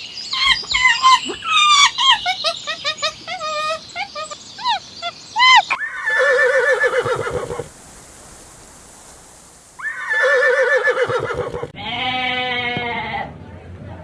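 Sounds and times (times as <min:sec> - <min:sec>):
horse whinnying: 0:05.4 - 0:07.7, 0:09.8 - 0:12.7.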